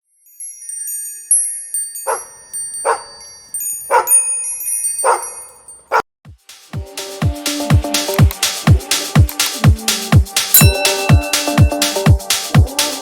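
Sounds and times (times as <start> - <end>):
tinkling chime tones: 0.0 - 6.0, 10.6 - 12.2
dog barking: 2.0 - 3.2, 3.9 - 4.3, 5.0 - 6.0.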